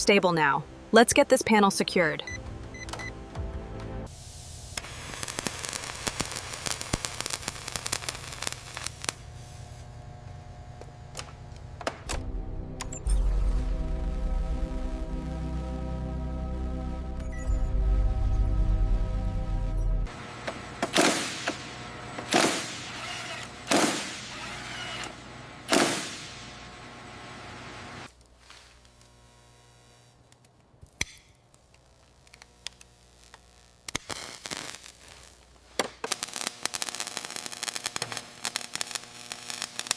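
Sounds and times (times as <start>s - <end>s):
crackling snaps and pops: 4.7s - 9.2s, 30.2s - 39.9s
low steady hum: 8.9s - 20.2s.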